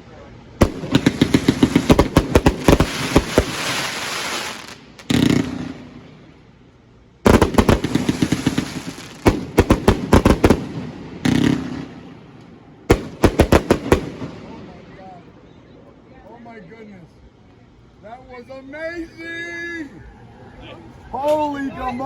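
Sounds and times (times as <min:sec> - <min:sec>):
big firework bang: 0:00.6 - 0:06.2, 0:07.2 - 0:12.3, 0:12.9 - 0:14.9
fireworks sharp bangs: 0:00.6 - 0:06.6, 0:07.2 - 0:15.4
fireworks crackling: 0:00.6 - 0:15.5.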